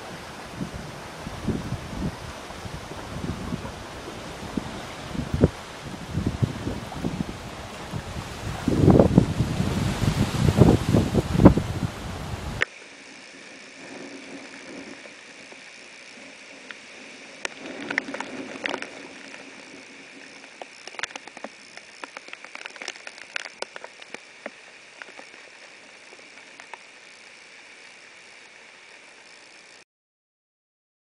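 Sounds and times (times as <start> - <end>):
heavy rain hiss: 0.0 - 29.8
raindrops tapping: 17.4 - 27.0.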